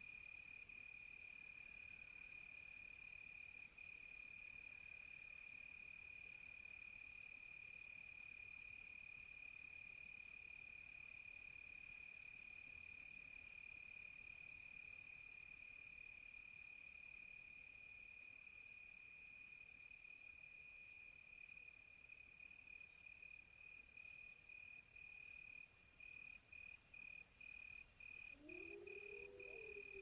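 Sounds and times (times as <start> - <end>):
cricket steady trill: 0.0 - 30.0
cricket higher trill: 28.4 - 30.0.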